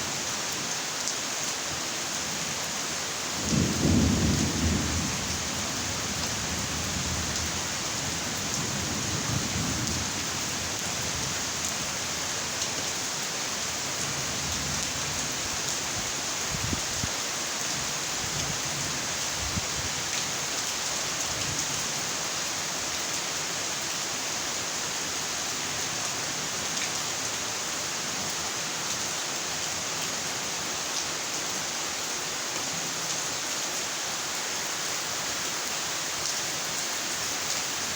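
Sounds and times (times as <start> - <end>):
steady rain hiss: 0.0 - 37.9
low thunder rumble: 3.4 - 7.2.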